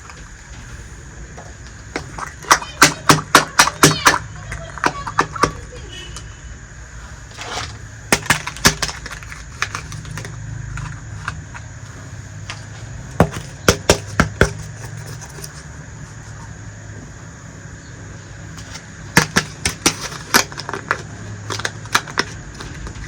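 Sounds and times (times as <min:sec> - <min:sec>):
steady low hum: 0:00.0 - 0:23.0
toy pieces clicking together: 0:18.6 - 0:23.0.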